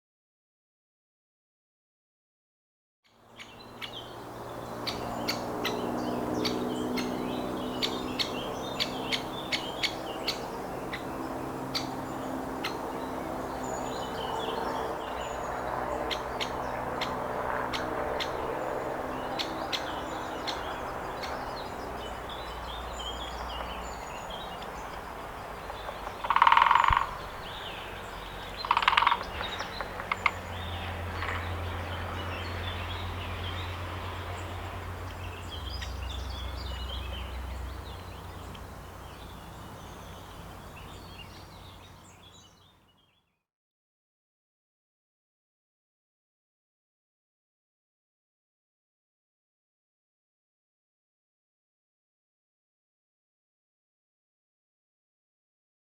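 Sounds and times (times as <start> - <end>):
birds calling and chirping: 3.3 - 43.1
sharp irregular clicks: 28.6 - 30.4.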